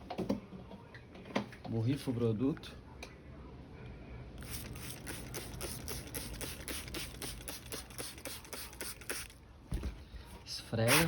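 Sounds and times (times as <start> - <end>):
trigger spray bottle squirting: 4.4 - 9.4.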